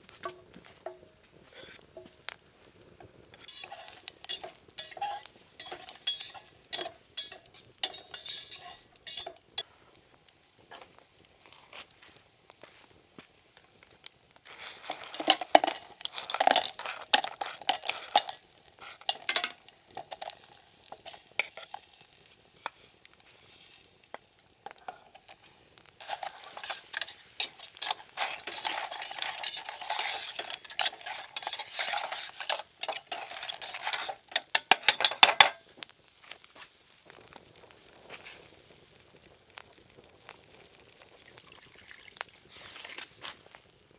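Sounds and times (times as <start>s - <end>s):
metal utensil scraping cookware: 3.4s - 9.6s, 14.6s - 21.8s, 26.0s - 35.6s.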